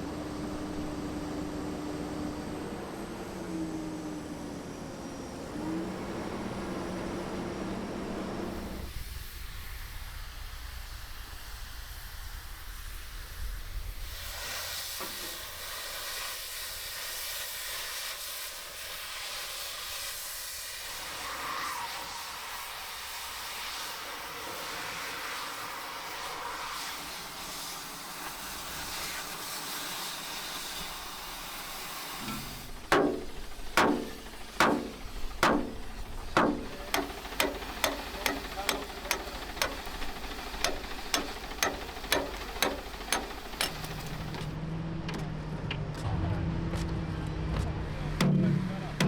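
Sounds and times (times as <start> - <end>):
sharp ringing knocks: 32.2 - 44.5.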